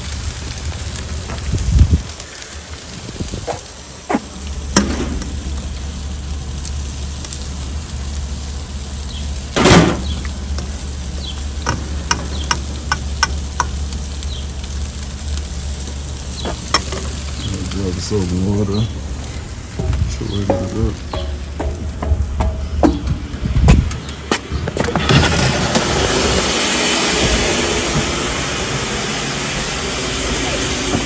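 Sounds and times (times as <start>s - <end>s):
small pops and crackles: 0.0s - 9.2s, 10.0s - 22.5s
food sizzling on a grill: 0.0s - 22.6s, 25.4s - 31.0s.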